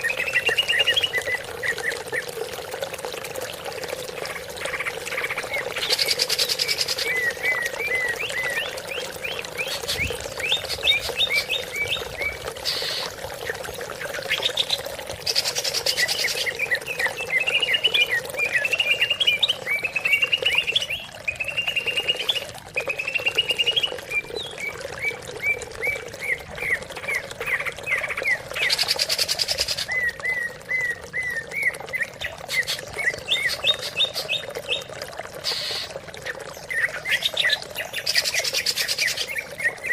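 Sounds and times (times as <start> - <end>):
harsh raspy bird calls: 9.6 - 13.2, 35.4 - 36.0.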